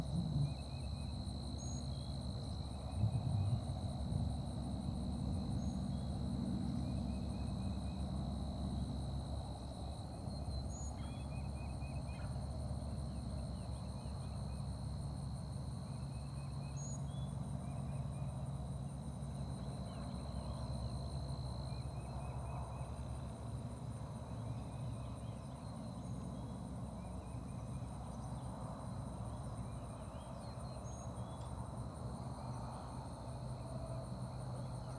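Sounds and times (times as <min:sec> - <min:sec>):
steady low rumble: 0:00.0 - 0:01.5, 0:02.5 - 0:07.8.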